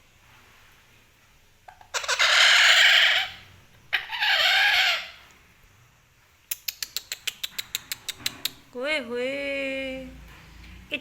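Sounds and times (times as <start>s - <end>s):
parrot screeching: 1.8s - 5.2s.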